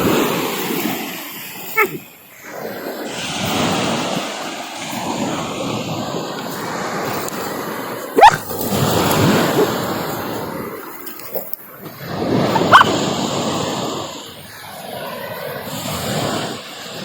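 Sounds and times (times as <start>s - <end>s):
sea surf washing on shore: 0.0s - 17.0s
puppy yipping: 1.7s - 2.1s, 8.2s - 8.5s, 9.4s - 9.8s, 12.5s - 13.0s
sharp rising yelp: 12.6s - 12.9s.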